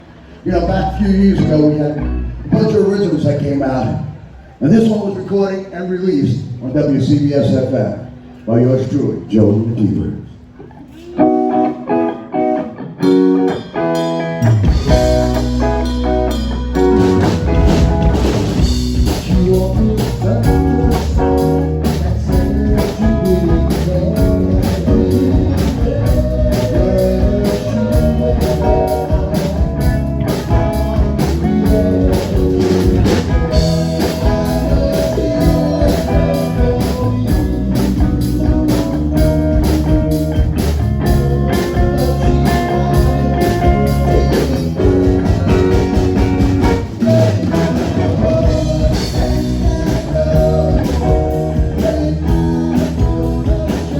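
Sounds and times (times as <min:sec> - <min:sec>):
electric guitar: 0:00.0 - 0:04.6, 0:10.3 - 0:53.9
live band playing: 0:10.4 - 0:53.9
drum kit: 0:13.0 - 0:53.9.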